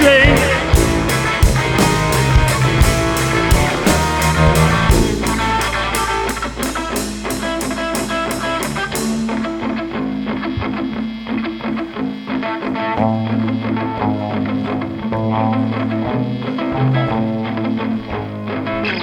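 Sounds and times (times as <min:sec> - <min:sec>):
electric guitar notes: 0:00.0 - 0:19.0
steady bass: 0:00.0 - 0:19.0
cymbal strikes: 0:00.8 - 0:10.6.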